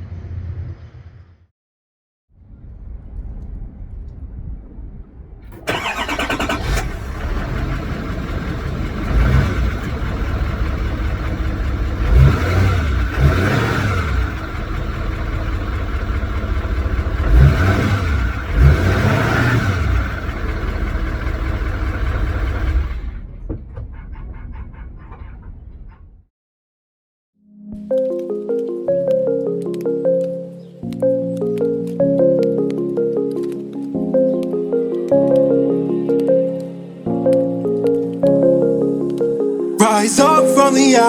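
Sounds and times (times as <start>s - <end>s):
diesel engine starting and revving: 5.5s - 25.7s.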